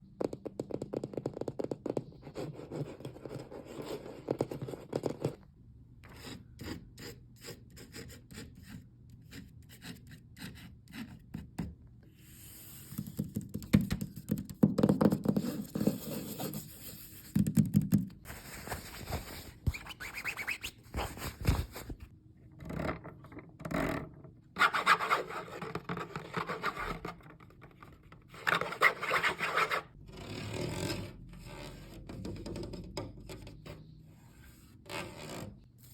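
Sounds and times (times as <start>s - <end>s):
fingers scratching and rubbing: 19.6s - 21.6s.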